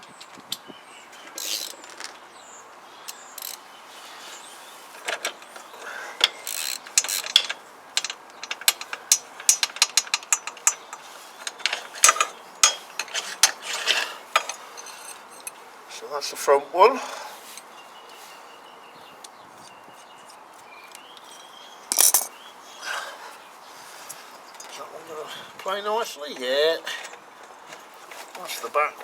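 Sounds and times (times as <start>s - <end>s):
socket ratchet clicking: 6.2s - 14.6s.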